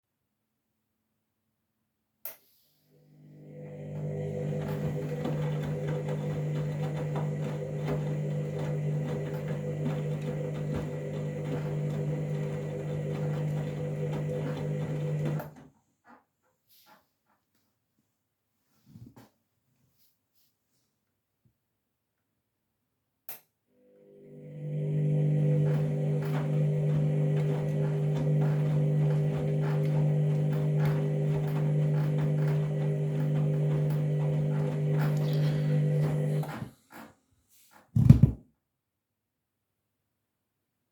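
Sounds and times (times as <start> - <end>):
washing machine humming: 3.2 - 15.6, 23.8 - 37.0.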